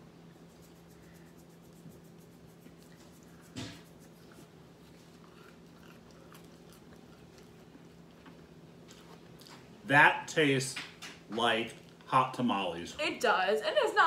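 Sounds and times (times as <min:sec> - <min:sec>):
steady low hum: 0:00.0 - 0:14.0
soft chewing: 0:00.2 - 0:09.8.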